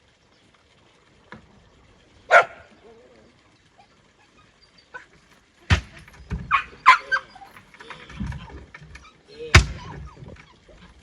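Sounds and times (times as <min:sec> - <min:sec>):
dog barking: 0:02.3 - 0:02.7, 0:06.5 - 0:07.5.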